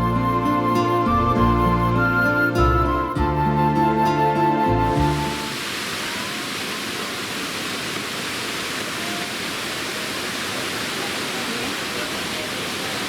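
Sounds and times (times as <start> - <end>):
waterfall roaring: 3.2 - 13.0.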